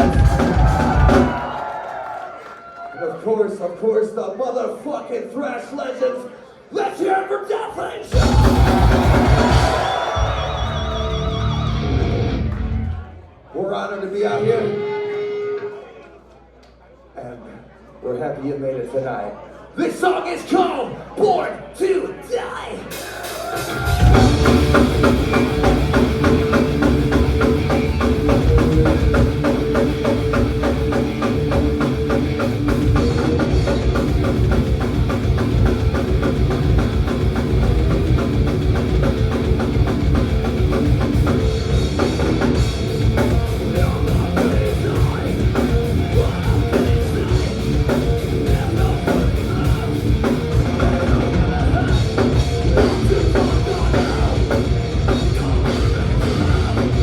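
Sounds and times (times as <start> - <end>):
metal band playing live: 0.0 - 1.5, 8.1 - 13.0, 22.9 - 57.0.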